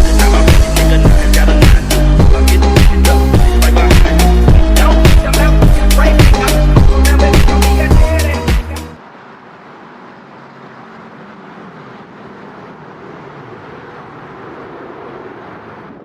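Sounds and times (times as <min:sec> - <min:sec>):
music: 0:00.0 - 0:09.0
jet airliner landing: 0:09.0 - 0:16.0.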